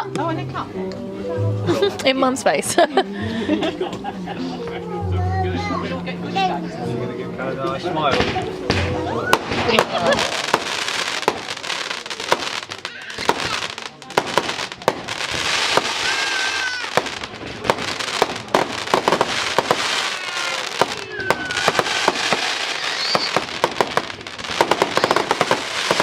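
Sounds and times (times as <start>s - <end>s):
fireworks crackling and popping: 8.1s - 26.0s
fireworks whistling: 9.2s - 26.0s.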